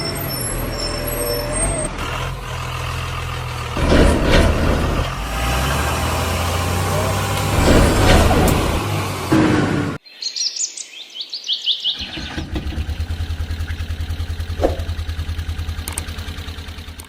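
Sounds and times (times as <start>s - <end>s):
engine noise: 0.0s - 10.0s, 12.0s - 17.0s
vehicle engine chugging: 0.0s - 10.0s, 12.0s - 17.0s
bird chirps: 10.0s - 12.4s.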